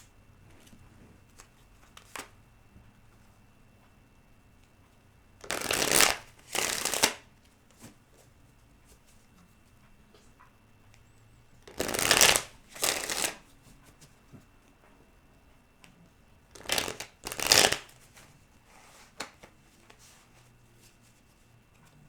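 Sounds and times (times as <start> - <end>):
cards being shuffled: 5.4 - 8.0, 11.6 - 13.5, 16.5 - 18.3
faint card rustles: 16.6 - 22.0.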